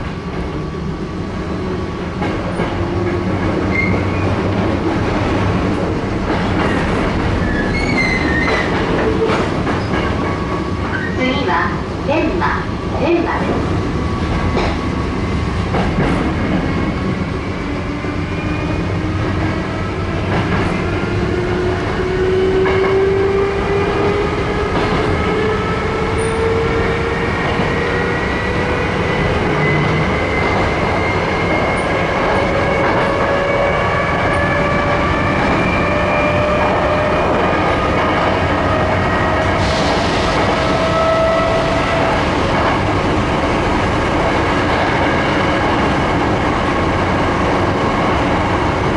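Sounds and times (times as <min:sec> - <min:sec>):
wheels rumbling on rails: 0:00.0 - 0:48.9
rail joint clicks: 0:02.0 - 0:11.5, 0:14.2 - 0:15.0, 0:15.7 - 0:16.8, 0:22.5 - 0:23.0, 0:23.8 - 0:28.2.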